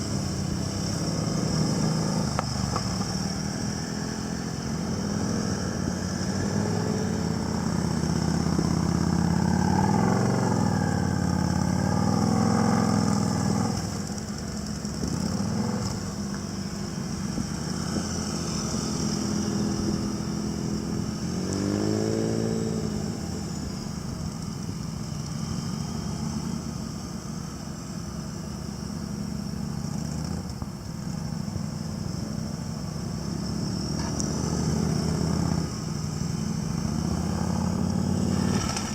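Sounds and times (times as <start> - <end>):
motorcycle engines revving: 0.0 - 38.9.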